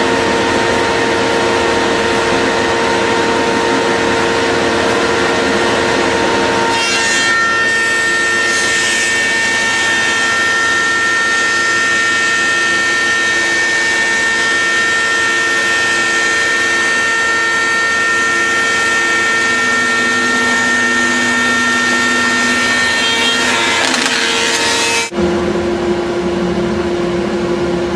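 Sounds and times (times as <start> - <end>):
saw whining while sawing wood: 0.0 - 25.1.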